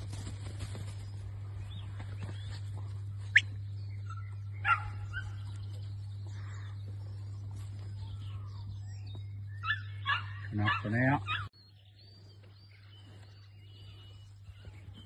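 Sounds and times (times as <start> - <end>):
steady low hum: 0.0 - 15.0
dog barking: 4.6 - 5.4, 9.6 - 11.5.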